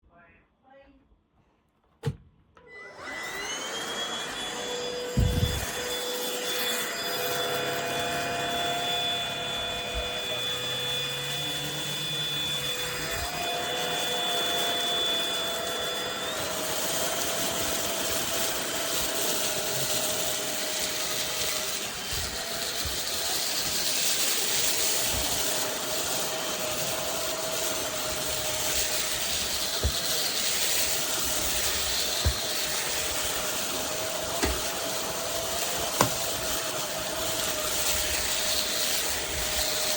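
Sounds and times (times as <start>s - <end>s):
stick vacuum motor whine: 2.6s - 39.9s.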